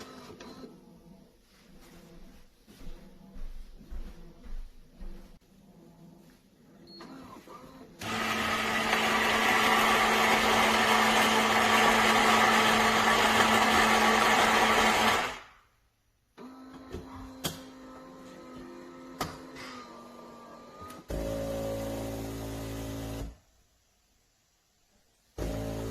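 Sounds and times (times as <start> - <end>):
coffee grinder whirring: 8.0 - 15.5.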